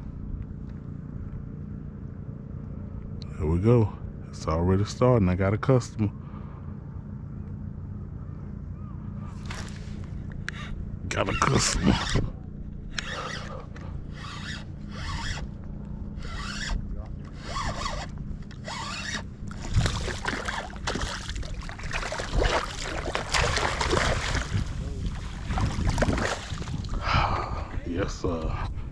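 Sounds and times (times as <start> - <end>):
fishing reel reeling in line: 10.5 - 12.3, 12.9 - 15.6, 16.2 - 20.8.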